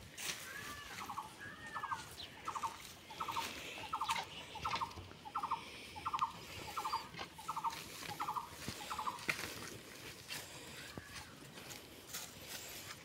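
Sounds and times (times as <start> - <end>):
bird stuttering call: 1.0 - 9.2.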